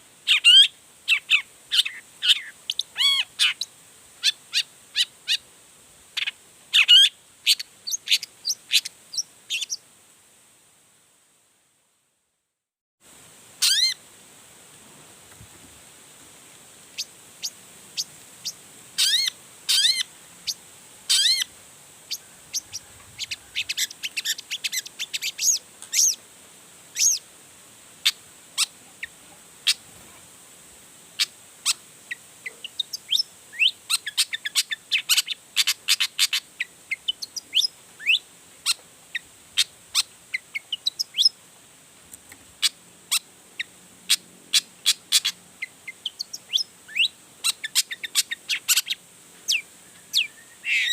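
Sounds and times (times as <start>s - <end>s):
bird singing rapid chirps: 22.5s - 26.2s, 44.1s - 50.9s.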